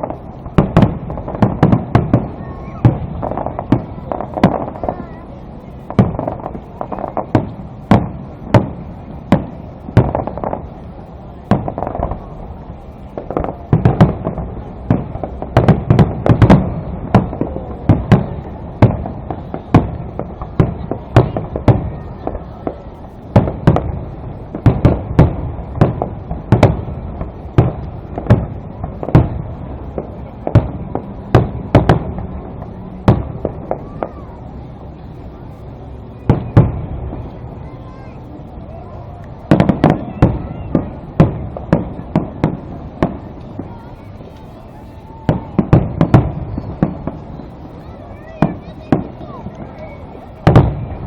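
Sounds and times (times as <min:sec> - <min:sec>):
firework shells bursting: 0:39.2 - 0:51.0.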